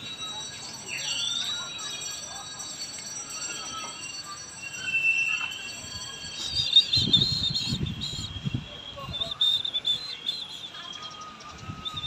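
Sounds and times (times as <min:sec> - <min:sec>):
murmur of voices: 0:00.0 - 0:12.0
small birds chirping: 0:09.0 - 0:12.0.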